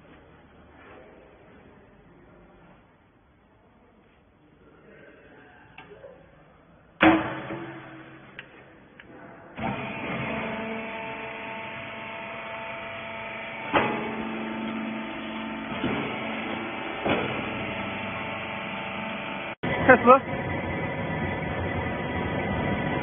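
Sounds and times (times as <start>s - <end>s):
loud metallic clank: 7.0s - 8.5s
baler motor humming: 9.6s - 23.0s
machine knocks: 13.6s - 18.0s.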